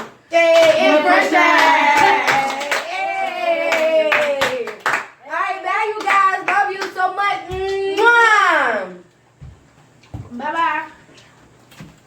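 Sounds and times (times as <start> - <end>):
hand claps: 0.0 - 0.8, 1.5 - 5.2.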